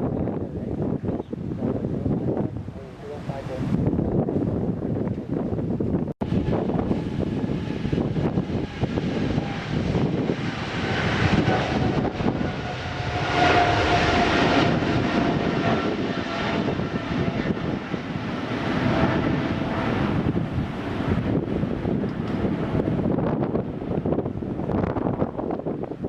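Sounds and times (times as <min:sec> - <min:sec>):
wind noise on microphone: 0:00.0 - 0:26.0
jet engines whining: 0:06.2 - 0:26.0.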